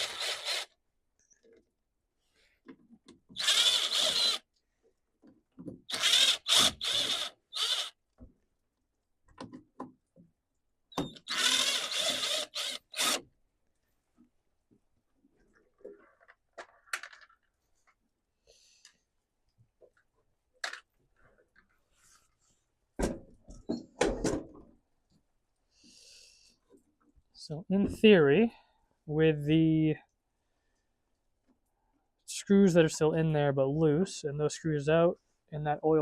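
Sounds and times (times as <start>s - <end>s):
power drill spinning screws: 0.0s - 0.8s, 3.3s - 4.5s, 5.9s - 8.0s, 11.0s - 13.3s.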